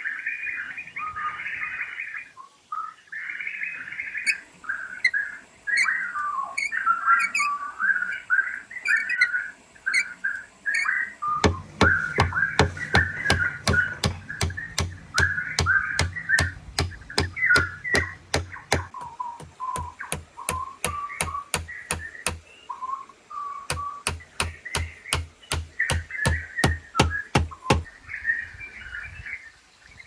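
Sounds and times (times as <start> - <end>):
whistled bird-like calls: 0.1 - 25.1
steady knocking: 11.3 - 22.4, 23.7 - 27.9.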